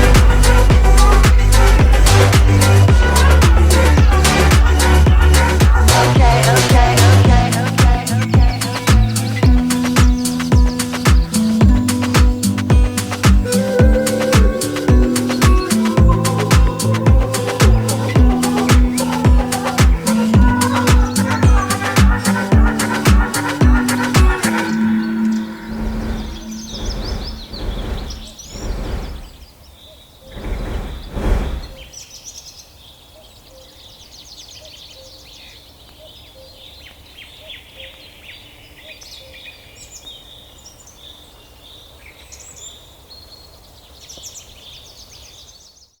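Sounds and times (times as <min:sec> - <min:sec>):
songbirds chirping and singing: 0:00.0 - 0:46.0
low rumbling surges: 0:24.7 - 0:29.6, 0:30.3 - 0:31.9.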